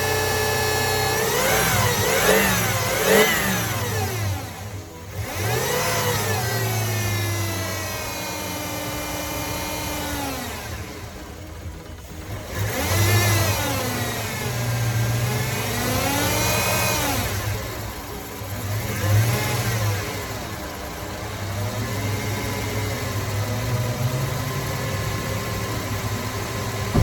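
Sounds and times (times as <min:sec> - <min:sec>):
car engine revving: 0:00.8 - 0:07.4.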